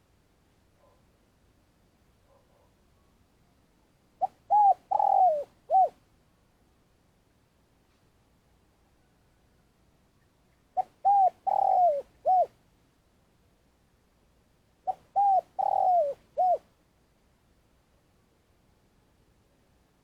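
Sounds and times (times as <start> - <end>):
dove cooing: 4.2 - 6.0, 10.8 - 12.6, 14.8 - 16.6.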